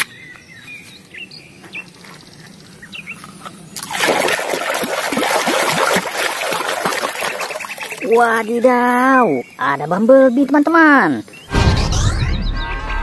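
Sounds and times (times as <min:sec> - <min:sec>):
dense splashing: 0:03.8 - 0:09.1
hands sloshing in water: 0:03.8 - 0:09.1.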